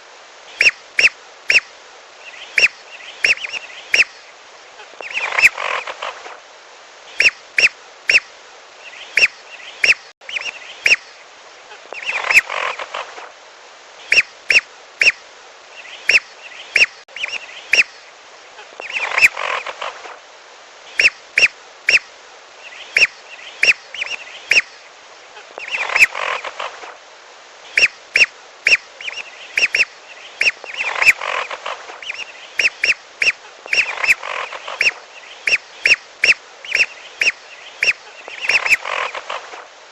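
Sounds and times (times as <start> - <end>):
whistling duck calls: 25.6 - 26.5, 27.7 - 39.4.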